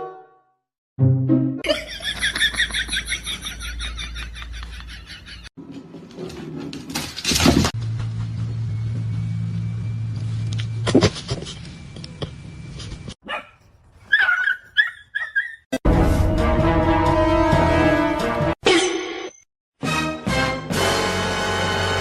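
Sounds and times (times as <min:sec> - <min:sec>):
dog barking and whining: 0:13.2 - 0:15.7.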